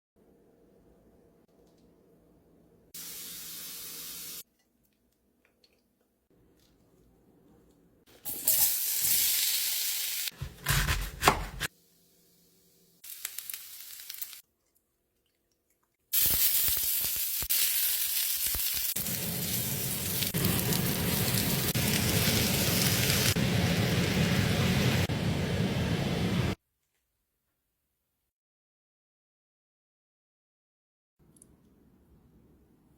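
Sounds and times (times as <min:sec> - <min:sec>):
food sizzling in a pan: 0:03.0 - 0:04.4, 0:08.2 - 0:10.4, 0:13.0 - 0:14.4, 0:16.1 - 0:25.1.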